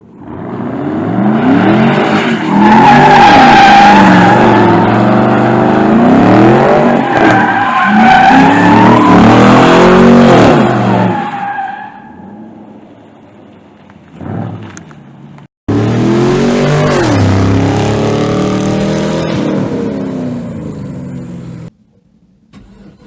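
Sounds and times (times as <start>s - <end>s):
loud car engine revving: 0.2s - 11.2s, 15.7s - 21.7s.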